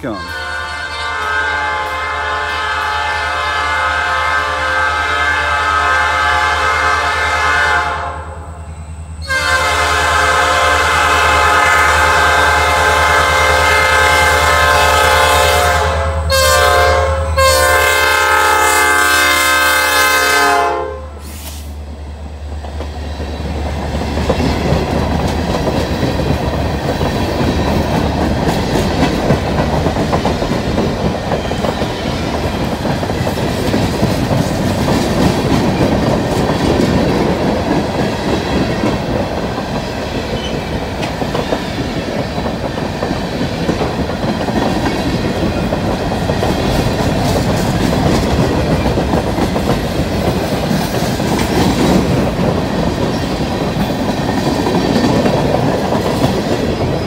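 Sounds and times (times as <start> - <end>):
locomotive horn blasts: 0.0 - 8.5, 9.2 - 21.3
train wheels clacking on rails: 22.4 - 57.0.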